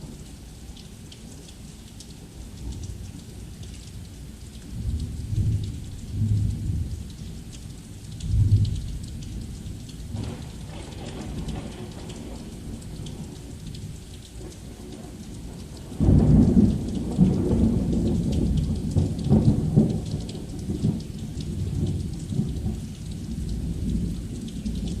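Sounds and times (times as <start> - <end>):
heavy rain falling: 0.0 - 25.0
thunder crack and rumble: 4.8 - 7.3, 8.2 - 25.0.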